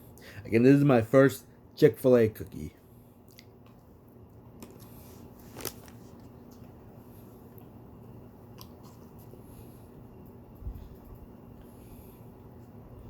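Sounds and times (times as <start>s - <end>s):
quiet chewing: 3.1s - 12.8s.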